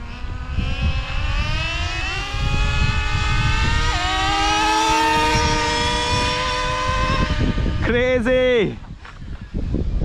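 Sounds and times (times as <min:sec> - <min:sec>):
rc truck engine buzzing: 0:00.0 - 0:07.8.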